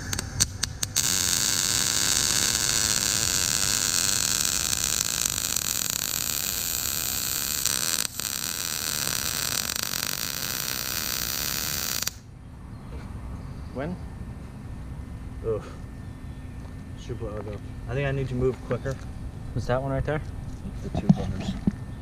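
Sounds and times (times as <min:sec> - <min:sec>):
welder arc hissing: 0:00.0 - 0:12.2
welder arc striking clicks: 0:00.0 - 0:12.2.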